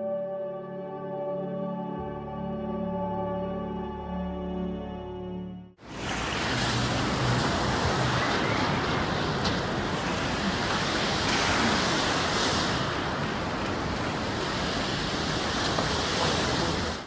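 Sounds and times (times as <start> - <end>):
rushing water: 5.8 - 17.0.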